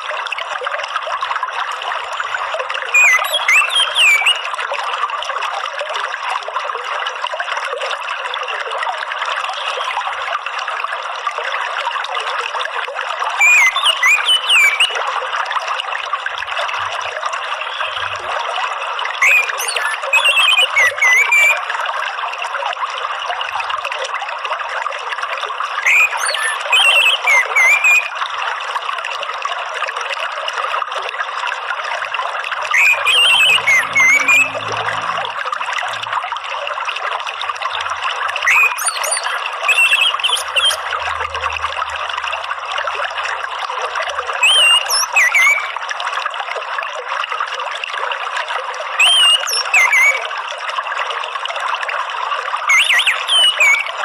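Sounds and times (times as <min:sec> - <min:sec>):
water trickling: 0:00.0 - 0:54.0
thrush warbling song: 0:19.2 - 0:21.6, 0:32.6 - 0:36.5, 0:37.5 - 0:43.4, 0:44.0 - 0:45.8, 0:52.7 - 0:54.0.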